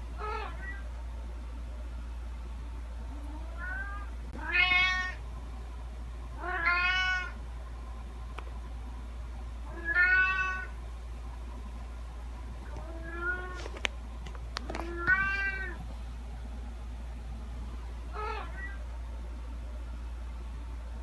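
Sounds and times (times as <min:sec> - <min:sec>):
steady low hum: 0:00.0 - 0:21.0
cat meowing: 0:03.3 - 0:05.2, 0:06.4 - 0:07.4, 0:09.7 - 0:10.7, 0:12.8 - 0:13.6, 0:14.9 - 0:15.8, 0:18.2 - 0:18.8.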